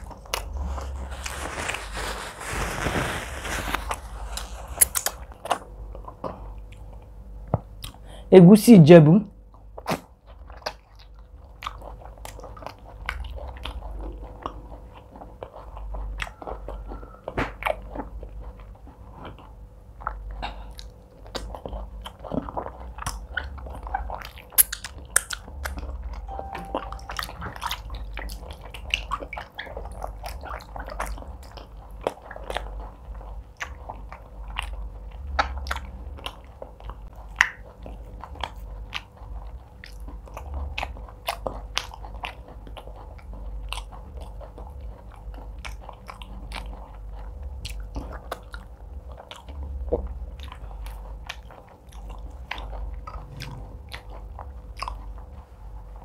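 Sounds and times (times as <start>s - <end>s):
chewing and lip smacking: 4.4s - 8.0s, 9.5s - 26.3s, 27.0s - 56.0s
small wet mouth clicks: 4.8s - 5.2s.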